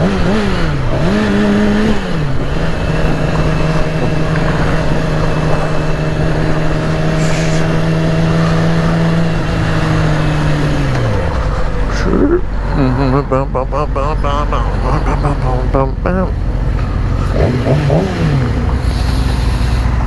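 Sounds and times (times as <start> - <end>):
wind rushing over microphone: 0.0 - 12.8
motorcycle engine running: 0.0 - 20.0.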